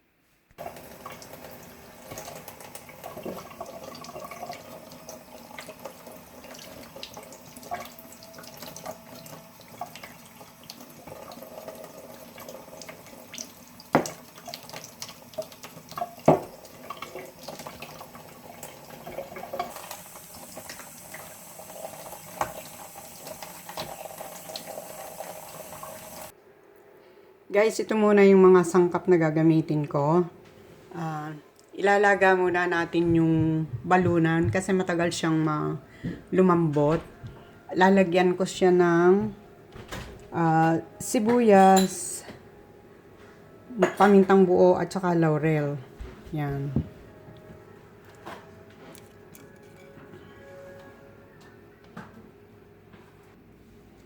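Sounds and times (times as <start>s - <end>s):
tap water running into sink: 0.6s - 26.3s.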